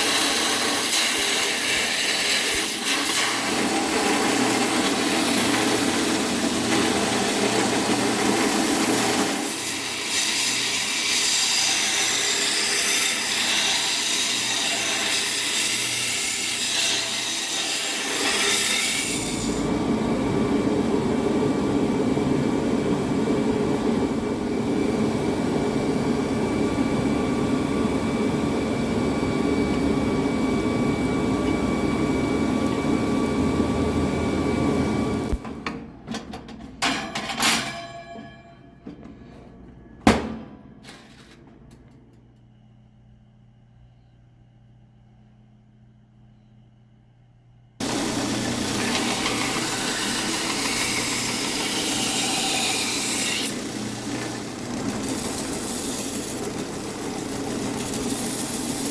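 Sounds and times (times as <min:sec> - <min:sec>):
power tool working steel: 0:00.0 - 0:21.1, 0:47.8 - 0:58.9.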